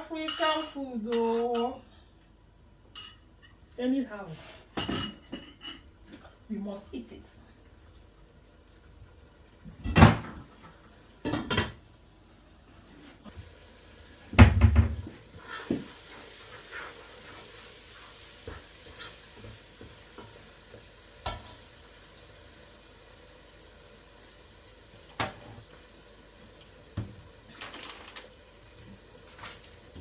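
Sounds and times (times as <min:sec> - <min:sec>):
food sizzling: 0:05.3 - 0:30.0
pots and utensils knocking: 0:14.4 - 0:15.9.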